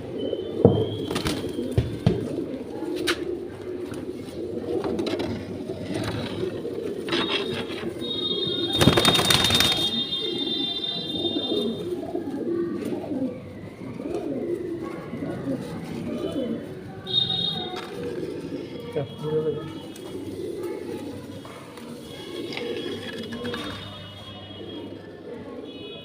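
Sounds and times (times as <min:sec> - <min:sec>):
pigeons cooing: 0:00.0 - 0:26.0.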